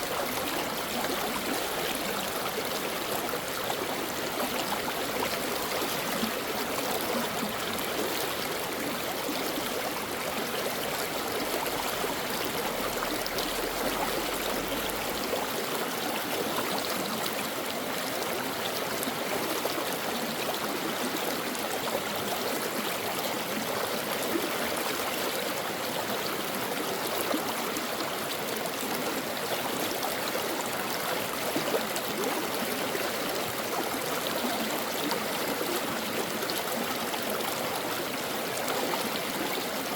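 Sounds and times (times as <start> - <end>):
brook flowing over rocks: 0.0 - 39.9.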